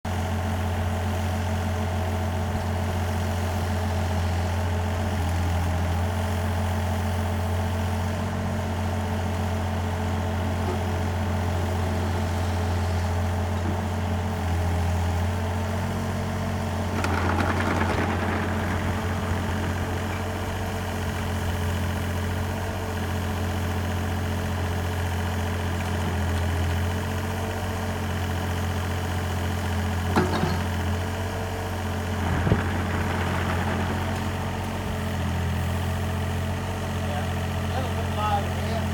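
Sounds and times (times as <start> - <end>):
burst of noise: 16.9 - 22.2, 32.0 - 35.2
low mechanical hum: 32.0 - 35.4.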